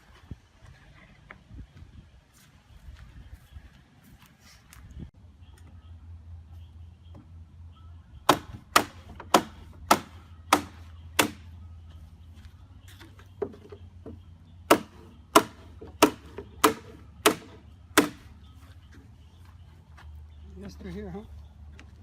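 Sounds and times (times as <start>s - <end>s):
hammer driving nails into wood: 14.7s - 18.2s.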